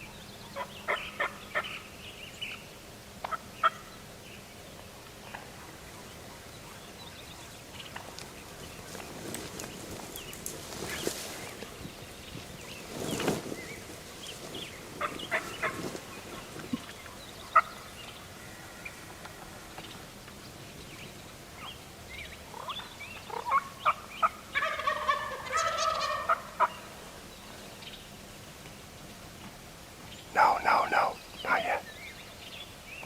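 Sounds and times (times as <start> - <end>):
turkey clucks and yelps: 0.6 - 1.8, 3.2 - 3.9, 15.0 - 17.9, 22.5 - 26.9, 30.4 - 31.9
turkey gobbling: 0.6 - 1.8, 3.2 - 3.9, 15.0 - 15.8, 16.6 - 17.9, 22.5 - 26.9, 30.4 - 31.8.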